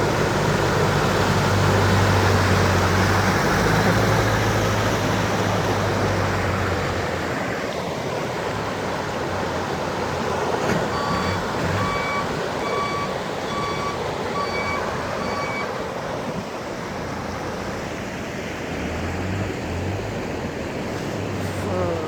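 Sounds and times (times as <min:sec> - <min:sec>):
low engine hum: 0:00.0 - 0:22.0
vehicle electronic warning beeps: 0:10.9 - 0:15.8.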